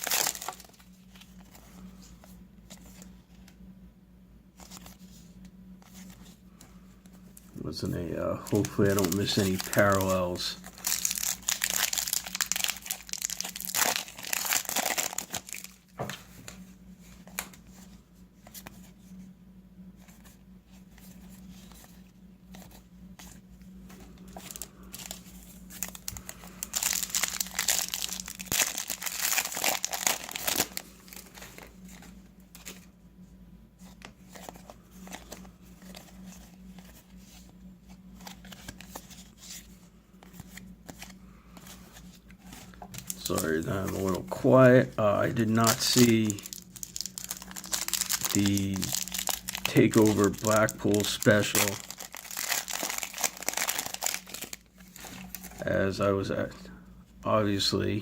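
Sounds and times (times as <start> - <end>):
foil wrappers crinkling: 0.0 - 2.2, 5.9 - 16.6, 22.5 - 32.9, 33.9 - 55.8
steady low hum: 0.0 - 58.0.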